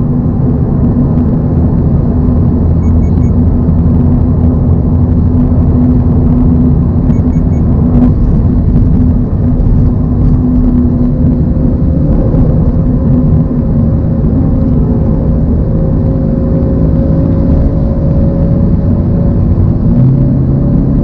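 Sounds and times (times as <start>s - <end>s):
car engine droning: 0.0s - 21.0s
road noise: 0.0s - 21.0s
short high beeps: 2.8s - 3.4s, 7.1s - 7.7s.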